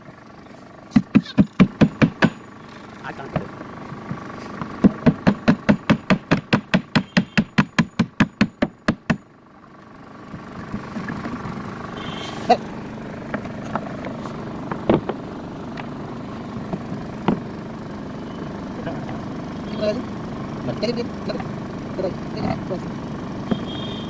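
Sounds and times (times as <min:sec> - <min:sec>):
rapid hammer blows: 0:00.9 - 0:02.4, 0:04.8 - 0:09.2
scattered knocks: 0:00.9 - 0:02.4, 0:04.7 - 0:09.2.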